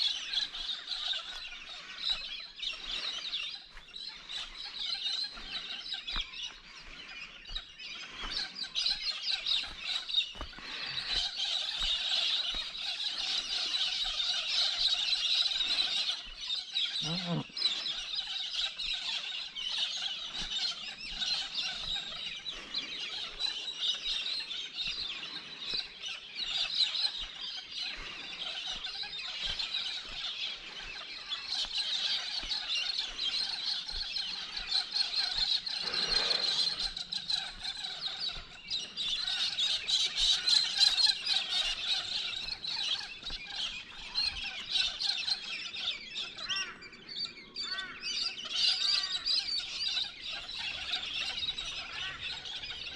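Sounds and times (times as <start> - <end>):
flock of birds screeching: 0.0 - 52.9.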